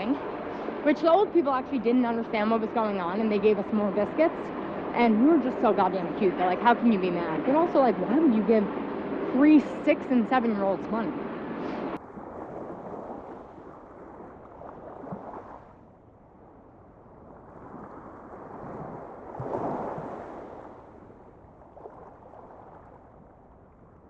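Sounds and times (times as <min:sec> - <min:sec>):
rushing noisy ambience: 0:00.0 - 0:12.0.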